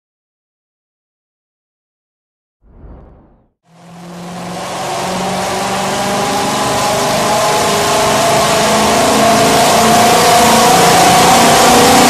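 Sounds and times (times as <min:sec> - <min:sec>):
engine revving on dyno: 0:03.7 - 0:12.0.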